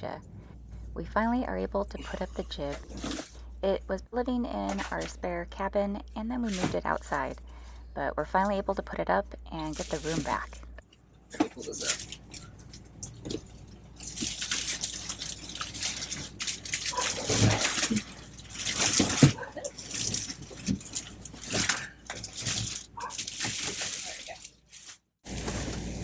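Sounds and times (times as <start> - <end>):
sailcloth rustling and crinkling: 11.5 - 26.0.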